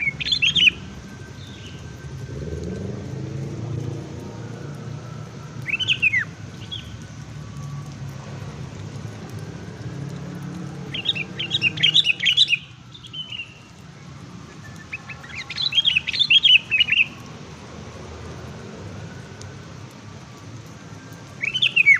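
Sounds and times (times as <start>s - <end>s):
songbird chirping: 0.0s - 4.3s, 5.6s - 7.9s, 10.6s - 17.3s, 21.2s - 21.9s.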